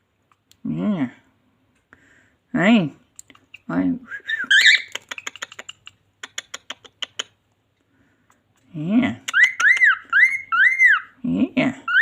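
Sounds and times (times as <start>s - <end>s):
bird clicking rapidly: 4.9s - 7.3s.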